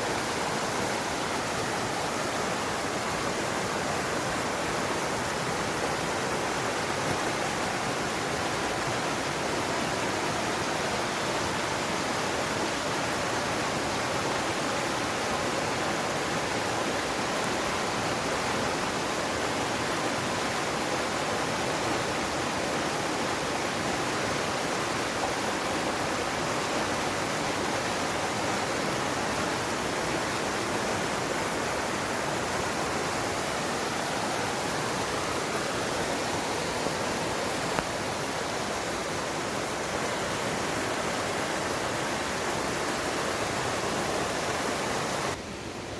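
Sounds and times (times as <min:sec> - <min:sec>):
stream rushing over rocks: 0:00.0 - 0:45.9.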